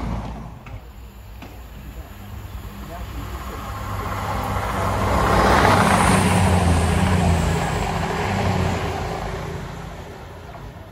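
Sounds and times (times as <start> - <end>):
diesel engine hum: 0.0 - 10.9
train wheels rushing on rail: 0.0 - 10.9.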